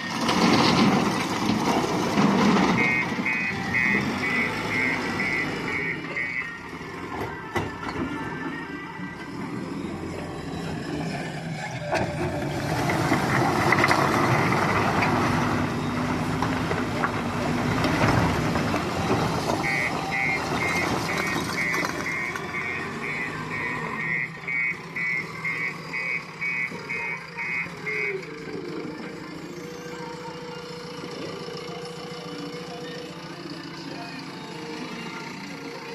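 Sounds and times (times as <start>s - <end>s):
diesel engine under load: 0.0s - 35.9s
reversing alarm beeping: 2.7s - 7.6s, 19.5s - 32.8s.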